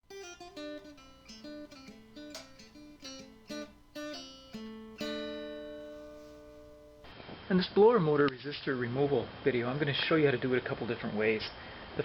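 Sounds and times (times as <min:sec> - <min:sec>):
acoustic guitar picking and strumming: 0:00.0 - 0:07.1.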